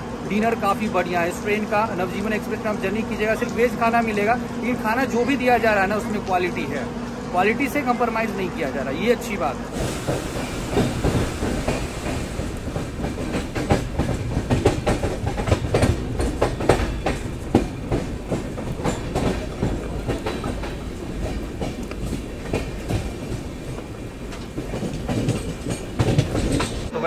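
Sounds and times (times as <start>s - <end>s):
train rumble: 0.0s - 27.0s
train wheels clacking over rail joints: 9.8s - 26.9s.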